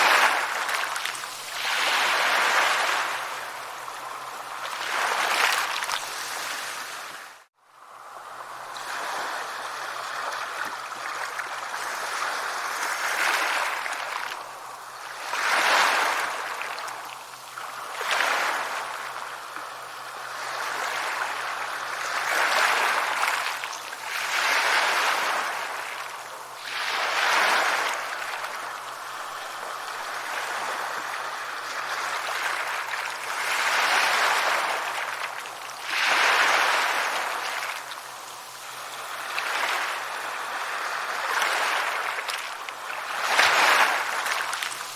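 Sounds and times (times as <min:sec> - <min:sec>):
sea waves breaking on shore: 0:00.0 - 0:44.9.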